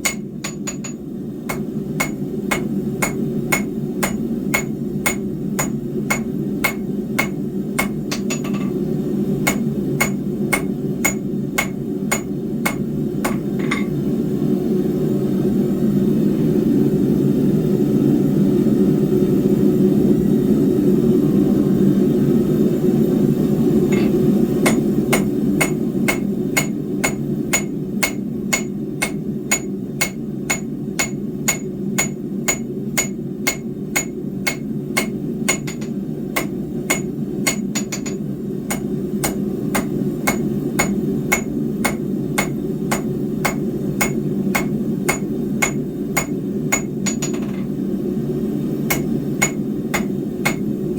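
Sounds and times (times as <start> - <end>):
hammer striking steel on anvil: 0.0 - 8.8, 9.4 - 14.0, 23.9 - 47.7, 48.9 - 50.7.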